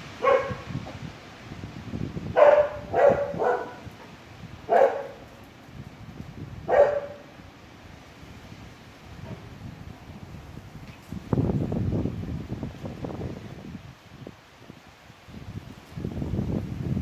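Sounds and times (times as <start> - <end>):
low rush of wind: 0.0 - 17.0
dog barking: 0.2 - 0.8, 2.4 - 3.9, 4.7 - 5.3, 6.7 - 7.3.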